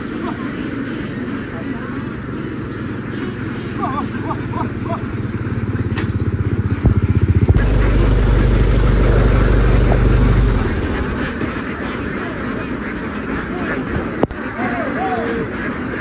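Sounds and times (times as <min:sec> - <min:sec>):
vehicle engine running: 0:05.4 - 0:12.1.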